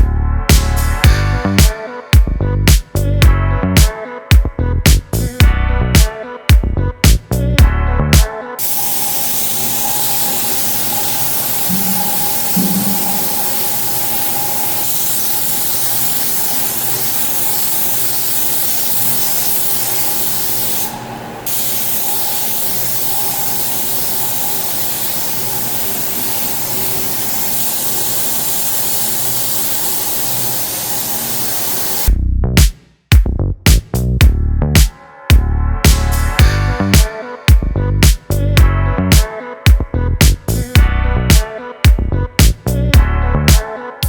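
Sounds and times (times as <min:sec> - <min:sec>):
spraying hiss: 0:08.6 - 0:32.1
low hum: 0:11.7 - 0:14.2.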